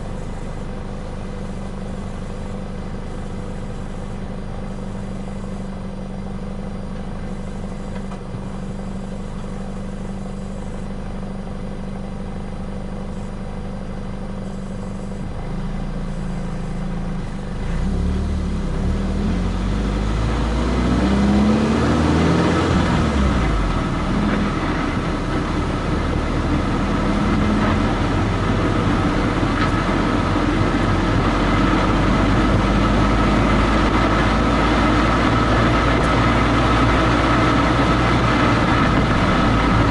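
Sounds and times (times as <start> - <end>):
car engine hum: 0.0 - 39.9
tyre and road noise: 0.0 - 39.9.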